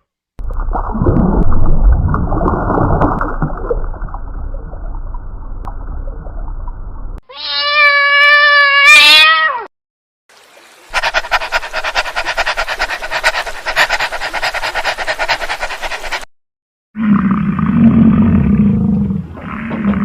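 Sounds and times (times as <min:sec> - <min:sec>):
cat meowing: 0:07.3 - 0:09.7
harsh pulsing rasp: 0:10.9 - 0:16.3.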